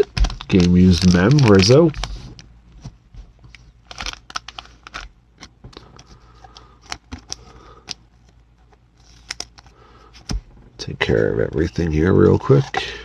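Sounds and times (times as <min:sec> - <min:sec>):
soft card rustles: 0:00.0 - 0:10.4.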